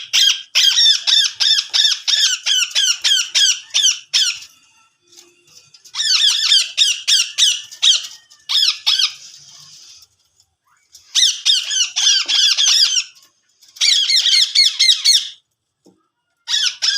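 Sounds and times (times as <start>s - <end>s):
parakeet squawking: 0.0s - 4.5s, 5.9s - 9.3s, 11.1s - 13.2s, 13.8s - 15.4s, 16.5s - 16.9s.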